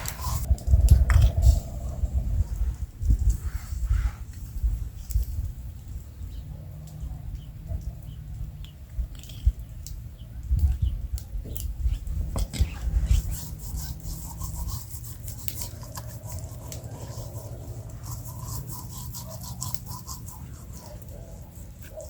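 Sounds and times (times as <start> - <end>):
campfire crackling: 14.8 - 22.0.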